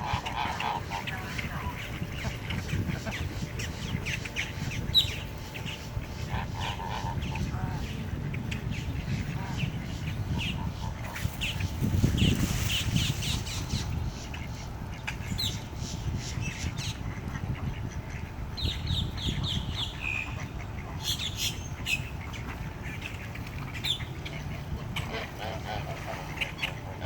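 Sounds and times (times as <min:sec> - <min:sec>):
birds chirping: 0:00.0 - 0:27.0
steady low rumble: 0:00.0 - 0:27.0.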